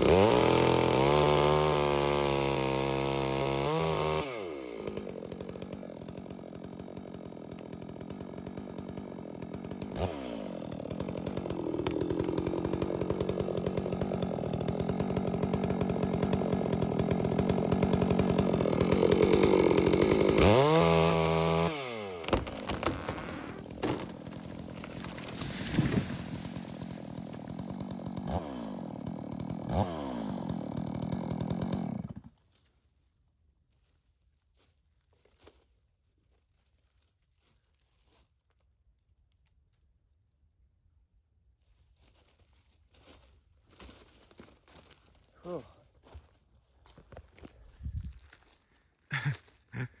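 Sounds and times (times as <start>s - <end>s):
chainsaw revving: 0.0s - 32.3s, 49.1s - 50.0s.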